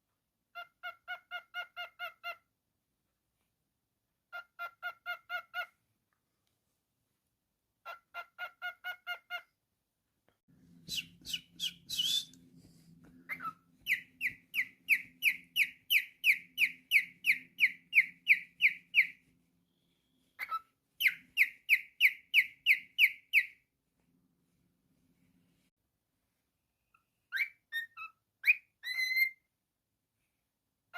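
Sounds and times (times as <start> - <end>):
cockatiel whistling and chirping: 7.8 - 9.4, 10.9 - 12.4, 13.2 - 23.6, 27.0 - 29.5.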